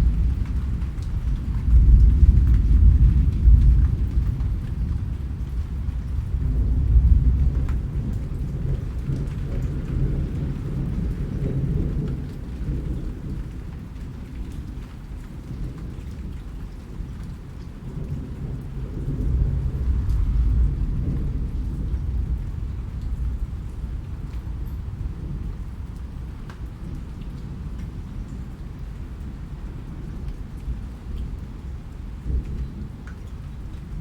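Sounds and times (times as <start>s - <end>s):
thunder rumbling: 0.0s - 14.1s, 16.8s - 29.1s
steady rain falling: 0.0s - 34.0s.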